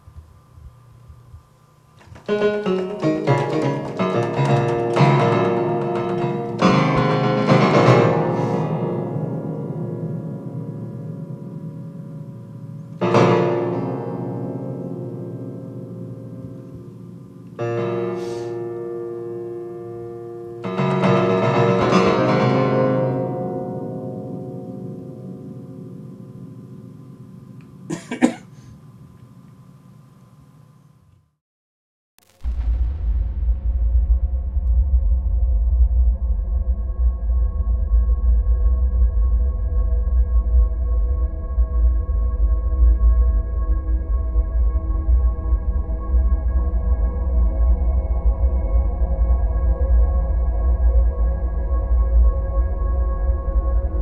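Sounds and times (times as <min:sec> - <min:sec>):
electrical hum: 0:00.0 - 0:31.4
low rumble: 0:32.2 - 0:54.0.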